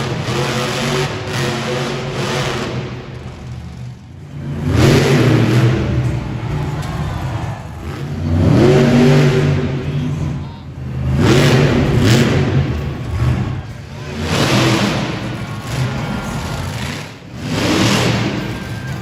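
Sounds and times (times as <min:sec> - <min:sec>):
truck engine revving: 0:00.0 - 0:19.0.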